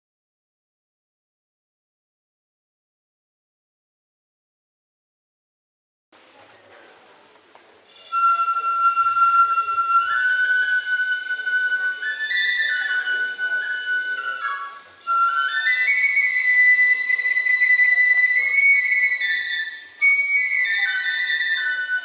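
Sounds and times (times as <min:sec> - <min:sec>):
bamboo flute melody: 0:07.9 - 0:22.0.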